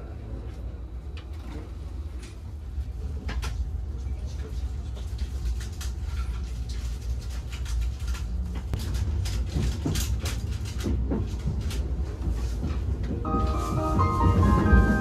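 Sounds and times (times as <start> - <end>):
train carriage rumble: 0.0 - 15.0.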